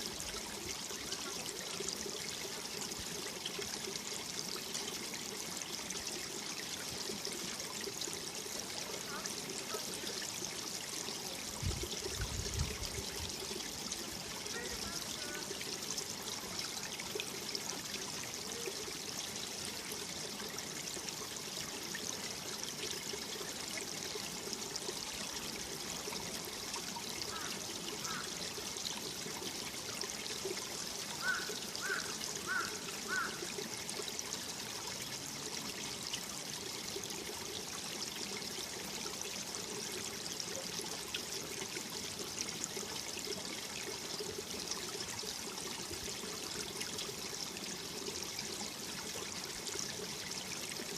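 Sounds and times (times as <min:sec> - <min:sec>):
stream running over rocks: 0:00.0 - 0:50.9.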